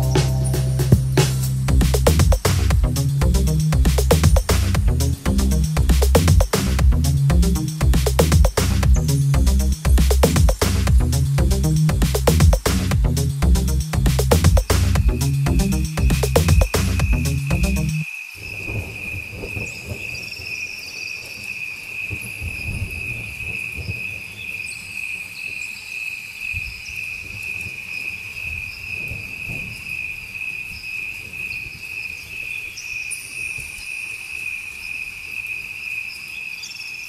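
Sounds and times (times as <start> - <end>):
soft low rumbling: 0.0 - 18.0
high-pitched insect calls: 13.3 - 37.0
crickets trilling: 15.0 - 37.0.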